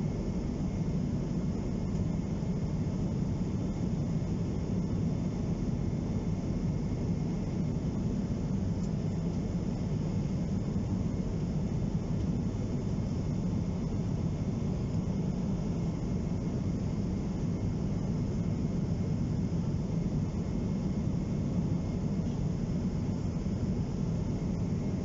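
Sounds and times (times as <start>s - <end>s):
airliner cabin engine rumble: 0.0s - 25.0s.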